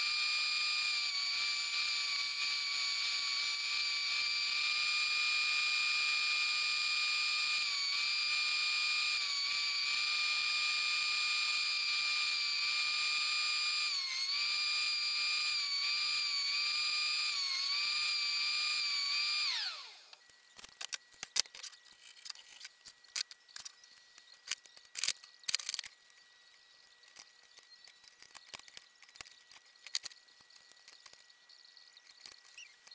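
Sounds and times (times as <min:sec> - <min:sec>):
thickness planer whining: 0:00.0 - 0:20.2.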